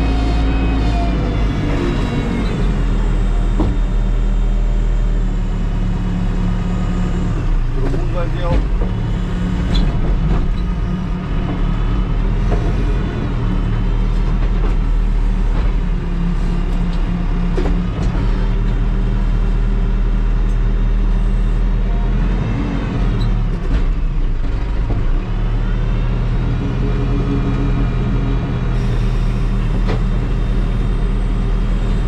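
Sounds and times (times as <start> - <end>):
backhoe diesel engine running: 0.0 - 32.0.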